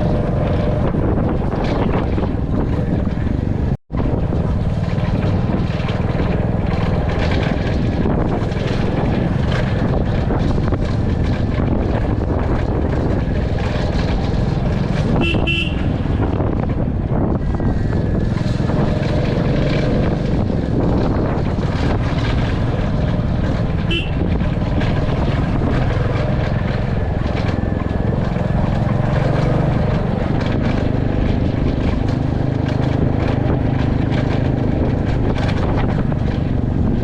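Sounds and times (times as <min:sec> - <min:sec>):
motorcycle engine running: 0:00.0 - 0:37.0
road and riding noise: 0:00.0 - 0:37.0
horn toot: 0:15.1 - 0:16.1, 0:23.9 - 0:24.3.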